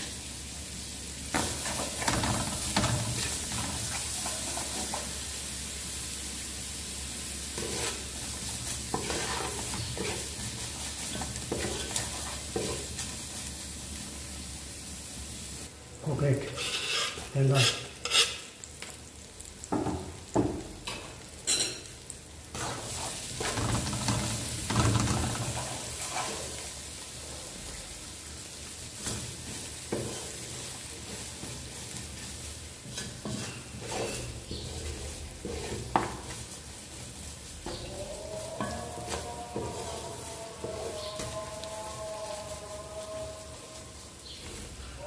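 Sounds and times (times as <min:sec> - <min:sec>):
onions sizzling in a pan: 0:00.0 - 0:45.0
spoon scraping and knocking a pan: 0:01.3 - 0:05.1, 0:07.5 - 0:13.1, 0:16.4 - 0:18.5, 0:22.5 - 0:26.7, 0:29.0 - 0:36.5, 0:37.6 - 0:41.6.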